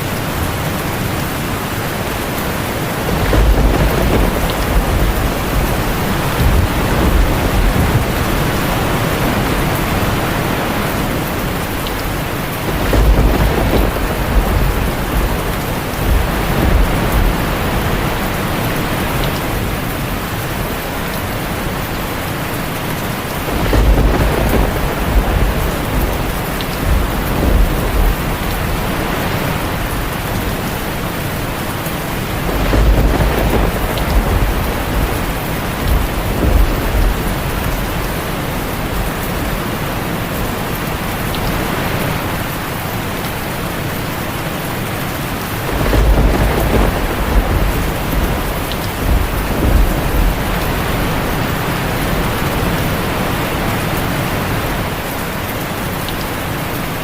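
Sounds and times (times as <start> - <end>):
heavy rain on a tin roof: 0.0 - 57.0
thunder rolling: 2.4 - 21.8, 23.2 - 39.9, 45.6 - 53.1.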